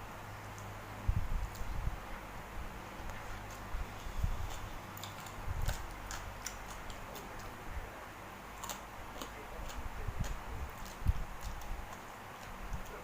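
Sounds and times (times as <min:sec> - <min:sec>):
mouth clicks and smacks chewing: 0:01.4 - 0:01.8, 0:04.4 - 0:07.6, 0:08.6 - 0:13.0.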